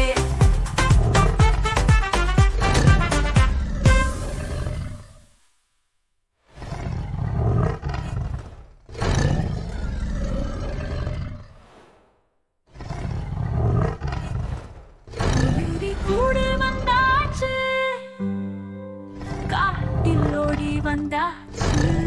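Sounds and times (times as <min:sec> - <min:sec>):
cartoon tiger roars: 0:06.5 - 0:11.6, 0:12.7 - 0:15.6.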